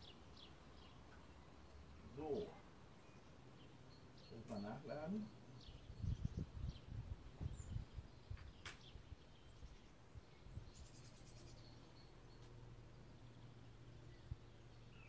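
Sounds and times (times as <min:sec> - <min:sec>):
bird trill: 0:00.0 - 0:06.9, 0:10.6 - 0:15.0
faint bird chirping: 0:00.0 - 0:15.0.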